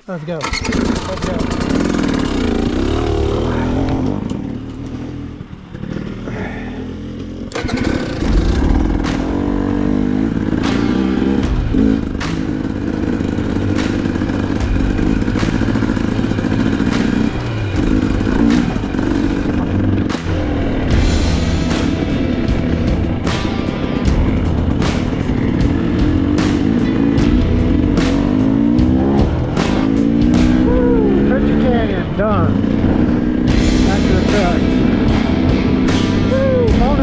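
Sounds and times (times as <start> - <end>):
dirt bike engine revving: 0.0 - 37.0
sharp knocks: 7.6 - 30.8.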